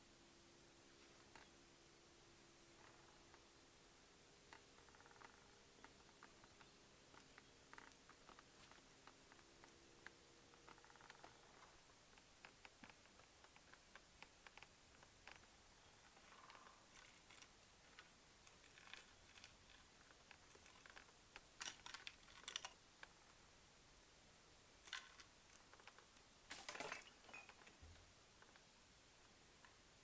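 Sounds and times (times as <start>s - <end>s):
objects clicking and rattling: 4.5s - 23.5s, 24.8s - 27.8s.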